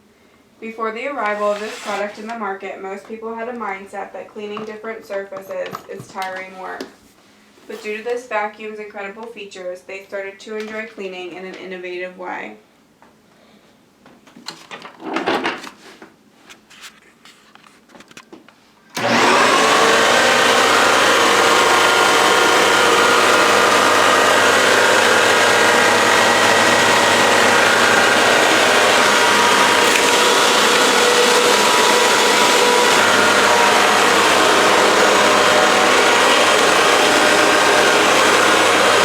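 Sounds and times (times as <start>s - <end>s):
vacuum cleaner running: 1.2s - 2.4s, 19.0s - 39.0s.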